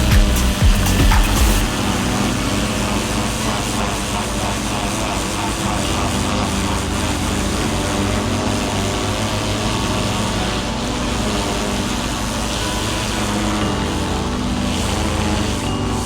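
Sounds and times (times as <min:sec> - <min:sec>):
pressure washer engine running: 0:00.0 - 0:16.0
steady hiss: 0:00.0 - 0:16.0.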